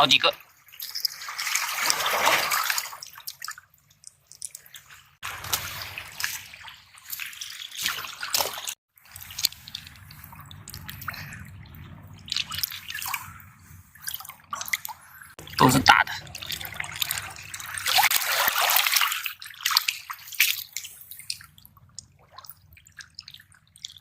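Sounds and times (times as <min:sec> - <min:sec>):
water dripping among rocks: 0:02.9 - 0:05.6, 0:07.0 - 0:13.3, 0:14.0 - 0:24.0.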